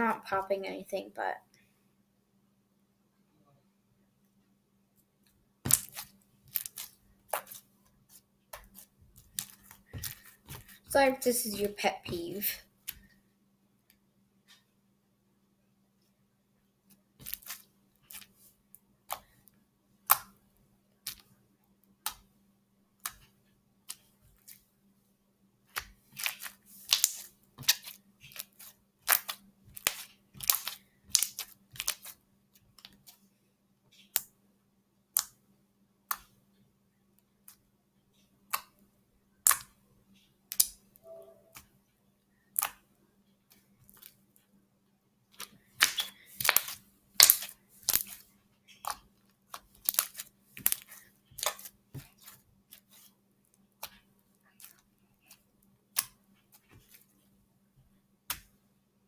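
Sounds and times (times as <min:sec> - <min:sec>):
slime clicking and popping: 0:05.7 - 0:07.6, 0:20.1 - 0:20.4, 0:25.8 - 0:32.1, 0:39.4 - 0:39.7, 0:45.4 - 0:48.2, 0:48.8 - 0:51.7.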